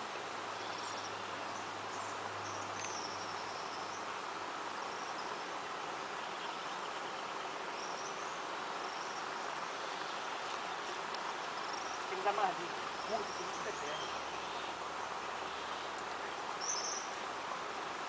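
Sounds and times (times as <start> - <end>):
insects chirring: 11.3 - 14.6.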